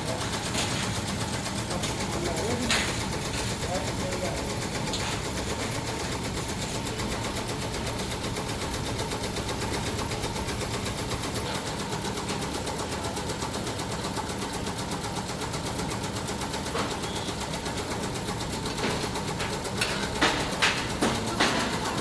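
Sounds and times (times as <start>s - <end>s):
factory machinery pulsing: 0.0s - 22.0s
sharp knocks: 18.8s - 22.0s.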